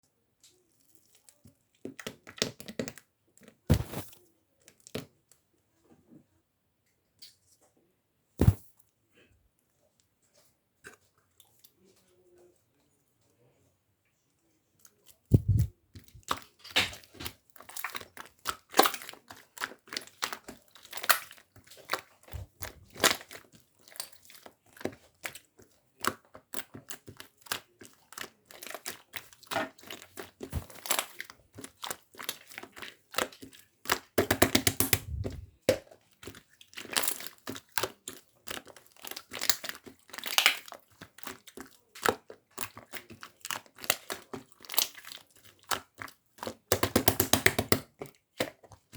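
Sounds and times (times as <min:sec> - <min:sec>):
hands squishing slime: 0:00.8 - 0:04.2, 0:08.4 - 0:08.6, 0:14.8 - 0:48.9
clicks and pops of trapped air: 0:15.3 - 0:15.7, 0:34.2 - 0:35.5.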